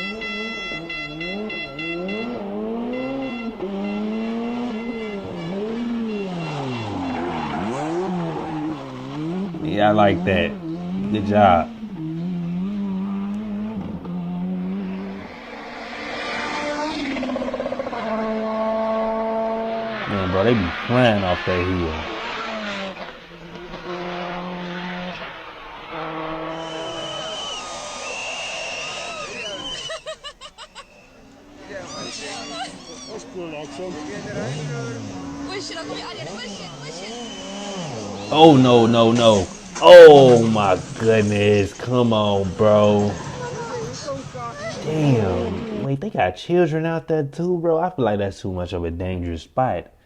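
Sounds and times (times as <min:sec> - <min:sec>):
rally car engine revving: 0:00.0 - 0:30.0, 0:31.0 - 0:46.0
rush of noise: 0:25.2 - 0:29.9.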